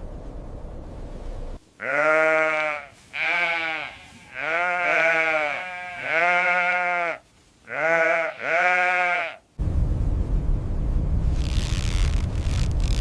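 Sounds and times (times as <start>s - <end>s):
low wind rumble: 0.0s - 2.0s, 9.6s - 13.0s
sheep bleating: 1.8s - 9.4s.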